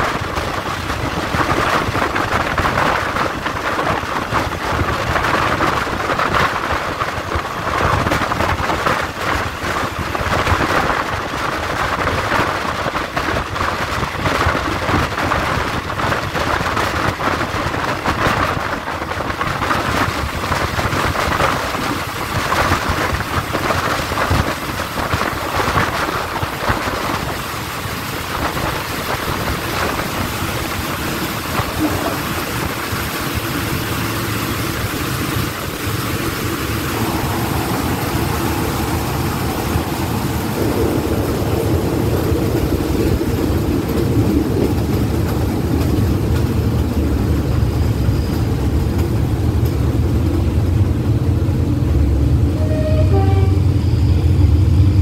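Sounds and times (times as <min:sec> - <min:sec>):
train track noise: 0:00.0 - 0:55.0
air rushing: 0:20.3 - 0:52.6.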